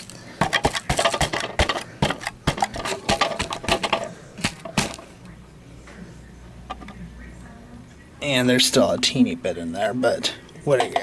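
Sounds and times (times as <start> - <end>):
plastic bin tapped and knocked: 0.4 - 5.1.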